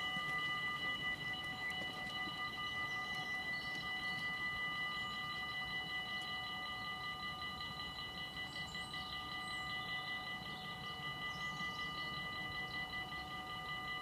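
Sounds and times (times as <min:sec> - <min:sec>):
level crossing warning bells: 0:00.0 - 0:14.0.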